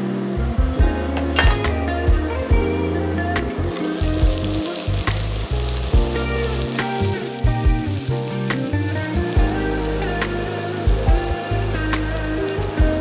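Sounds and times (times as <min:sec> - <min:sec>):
leeks sizzling in hot oil: 0:03.7 - 0:13.0.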